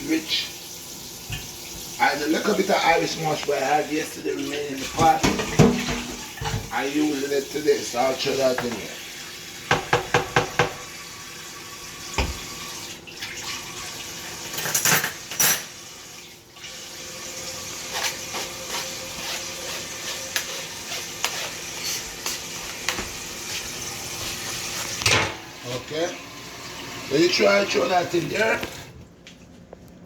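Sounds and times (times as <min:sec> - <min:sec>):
utensil scraping a pot: 0:17.8 - 0:22.4.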